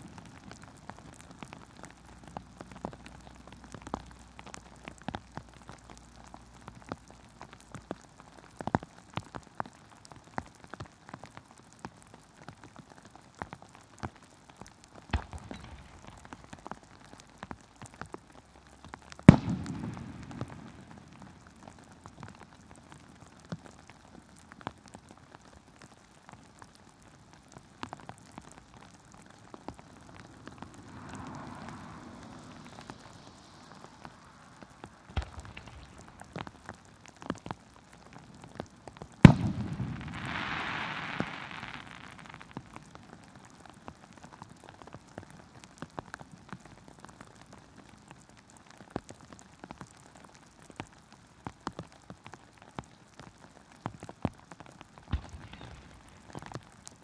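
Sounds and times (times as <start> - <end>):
heavy rain pattering: 0.0 - 57.0
firework bangs: 15.1 - 16.6, 19.2 - 21.4, 30.4 - 36.8, 39.2 - 42.7, 55.1 - 56.4.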